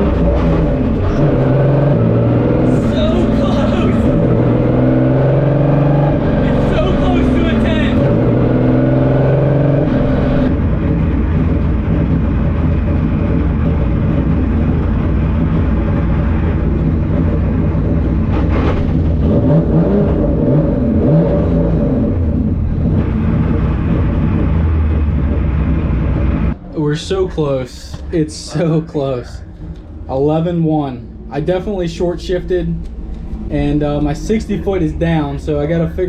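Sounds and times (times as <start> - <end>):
drag car engine running hard: 0.0 - 26.6.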